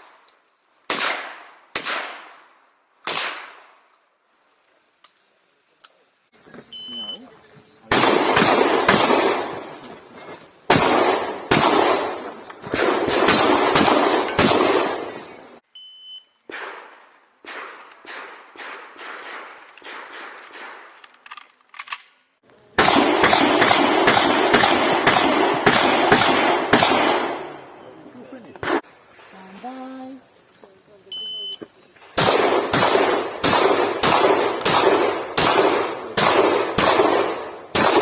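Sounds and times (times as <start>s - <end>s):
shotgun shots: 0.9s - 3.8s, 7.9s - 9.9s, 10.7s - 15.5s, 16.5s - 20.9s, 22.8s - 27.9s, 28.6s - 28.8s, 32.2s - 38.0s
shot timer beep: 15.7s - 16.4s.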